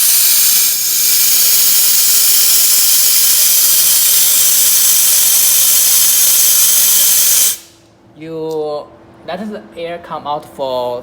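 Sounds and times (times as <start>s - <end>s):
compressed air hissing: 0.0s - 7.8s.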